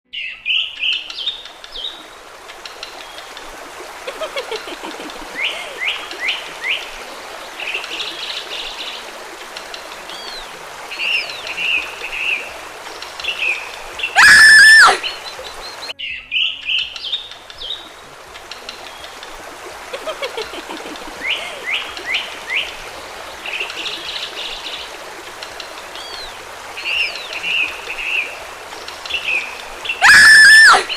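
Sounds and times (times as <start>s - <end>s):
birds chirping and trilling: 0.1s - 3.4s, 9.9s - 30.0s
trickling stream: 0.1s - 30.9s.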